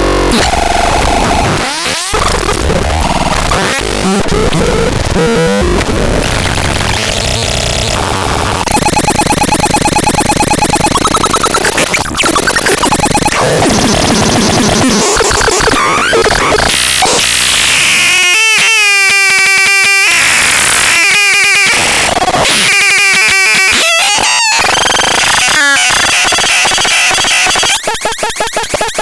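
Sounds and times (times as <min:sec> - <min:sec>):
glitchy electronic static: 0:00.0 - 0:29.0
electronic pulsing: 0:07.4 - 0:16.7
steady pitched electronic tones: 0:08.6 - 0:16.7.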